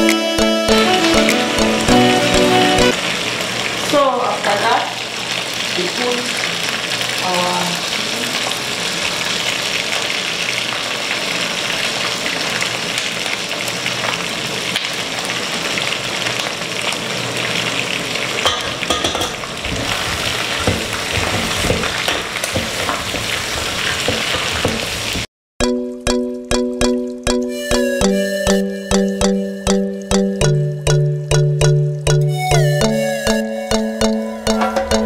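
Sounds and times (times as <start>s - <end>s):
plucked music: 0.0s - 3.0s, 25.6s - 35.0s
chicken sizzling in pot: 1.4s - 25.3s.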